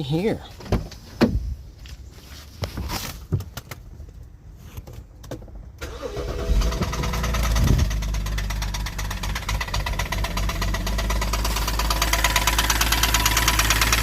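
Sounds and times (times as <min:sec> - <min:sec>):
car engine starting: 0:05.8 - 0:14.0
engine knocking: 0:06.6 - 0:14.0.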